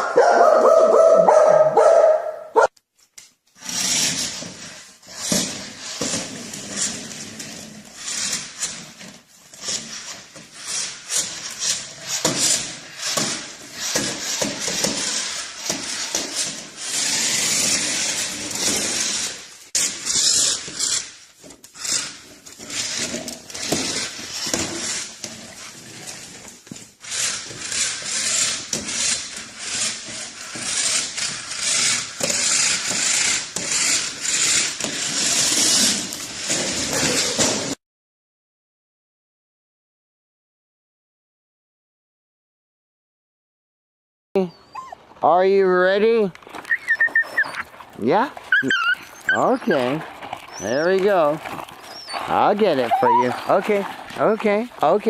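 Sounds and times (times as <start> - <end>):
dog noises: 0.0 - 2.7, 44.4 - 45.6, 46.5 - 54.4
scratchy rustling: 46.1 - 55.0.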